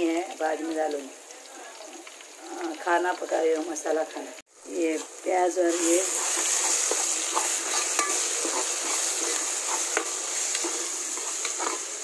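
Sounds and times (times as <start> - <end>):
onion and tomato sizzling in oil: 0.0 - 12.0
spoon scraping and tapping a pot: 6.2 - 11.9.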